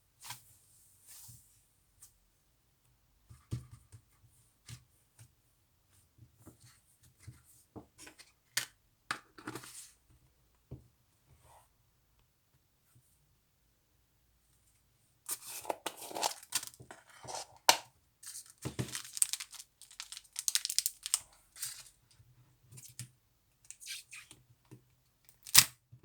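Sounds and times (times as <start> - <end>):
slime clicking and crackling: 18.8 - 21.2.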